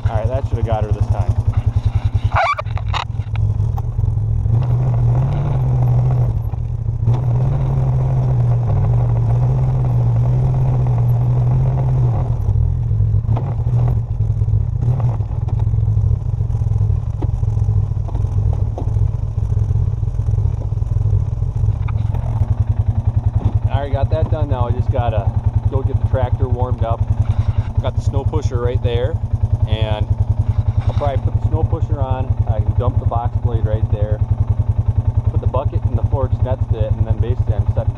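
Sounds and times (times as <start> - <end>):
knocks and rattles: 0.0 - 5.6, 17.1 - 19.7
vehicle engine under load: 0.0 - 37.9.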